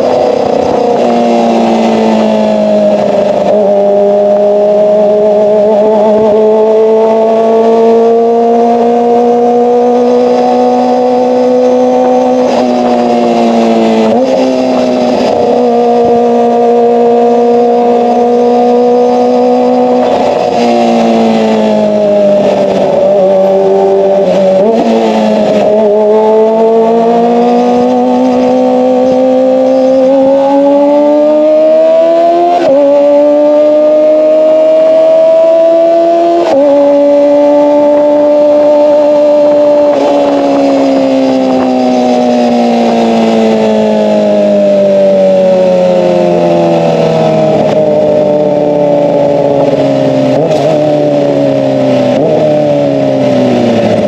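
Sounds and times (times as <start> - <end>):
motorcycle engine revving high: 0.0 - 54.0.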